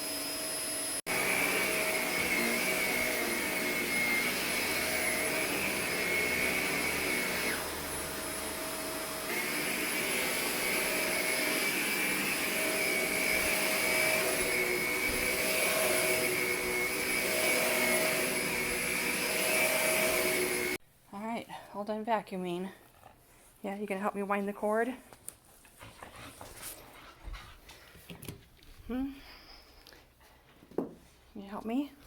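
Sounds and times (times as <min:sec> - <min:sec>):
vacuum cleaner running: 0:00.0 - 0:20.8.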